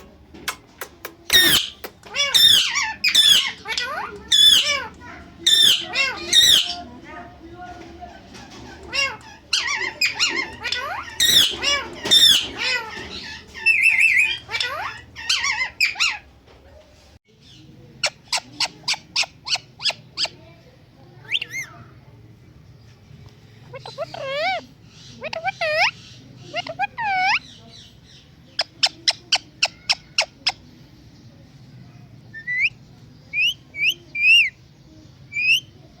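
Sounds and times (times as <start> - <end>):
parrot chirping and whistling: 1.3 - 2.6
parrot squawking: 1.3 - 6.9, 8.8 - 16.3, 21.2 - 21.7, 23.7 - 27.4.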